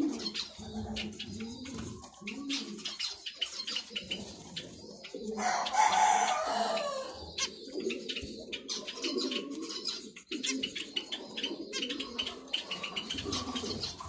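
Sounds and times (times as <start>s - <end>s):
dove cooing: 0.0s - 14.0s
rooster crowing: 5.4s - 7.2s.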